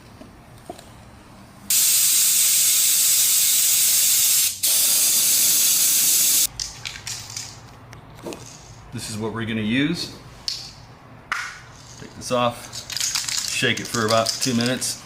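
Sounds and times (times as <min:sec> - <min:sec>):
pressurised spray hissing: 0:01.7 - 0:06.5.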